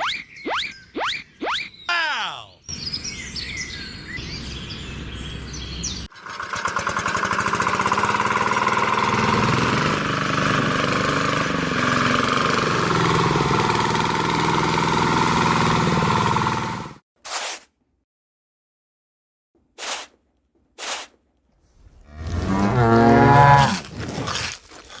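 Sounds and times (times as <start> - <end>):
small engine puttering: 5.5 - 17.0.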